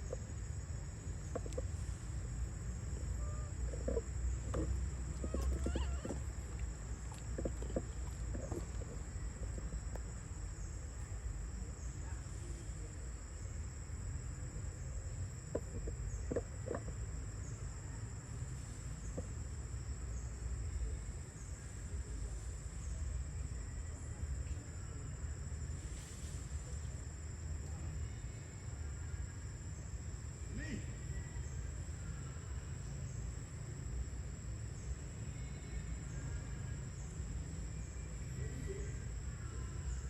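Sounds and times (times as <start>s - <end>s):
faint knocks: 3.7s - 9.0s.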